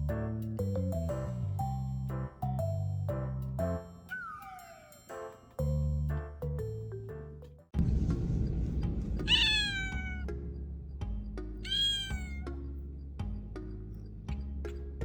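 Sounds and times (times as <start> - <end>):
background music: 0.0 - 15.0
kitten meowing: 9.3 - 10.3, 11.6 - 12.5.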